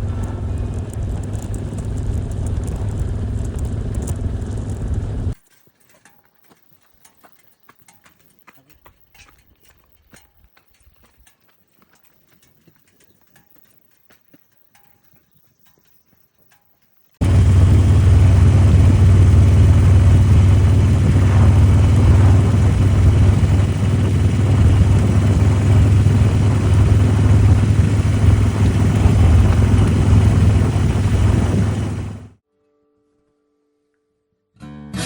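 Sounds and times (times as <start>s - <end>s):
motorcycle engine running: 0.0s - 5.4s, 17.2s - 32.4s.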